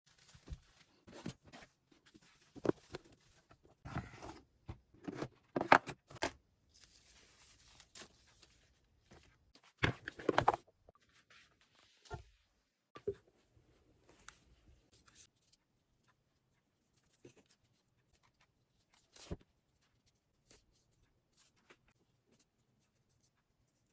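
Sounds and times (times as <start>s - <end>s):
handling rustles and crackles: 0.1s - 12.3s.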